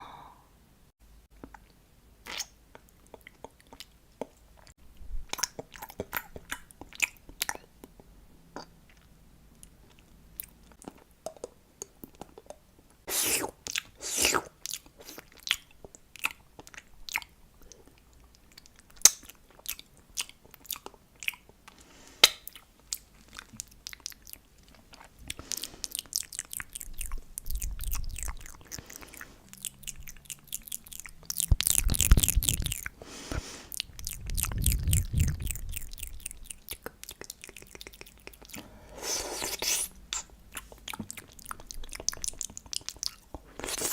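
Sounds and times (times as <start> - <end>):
wet sticky chewing and smacking: 1.4 - 13.0, 13.6 - 33.0, 33.7 - 38.6, 39.4 - 43.9
tongue clicks: 29.6 - 33.0, 33.8 - 38.6.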